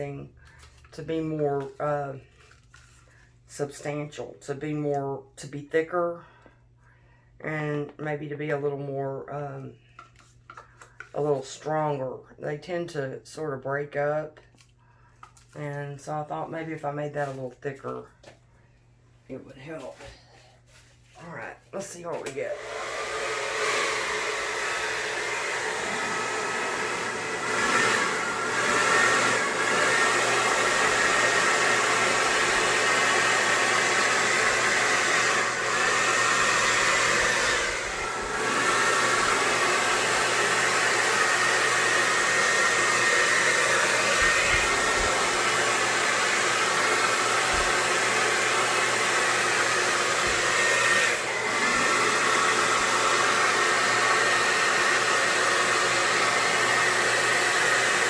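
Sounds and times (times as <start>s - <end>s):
hair dryer blowing: 20.7s - 58.0s.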